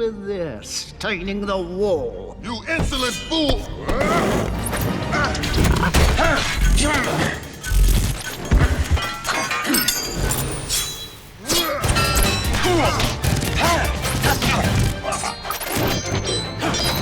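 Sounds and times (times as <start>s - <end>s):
orchestral fight music: 2.8s - 9.6s, 11.6s - 17.0s.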